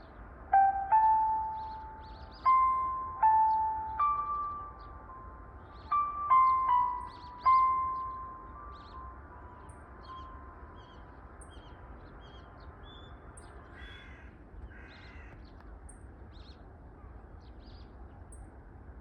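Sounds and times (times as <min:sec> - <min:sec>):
small birds chirping: 0:00.0 - 0:18.5.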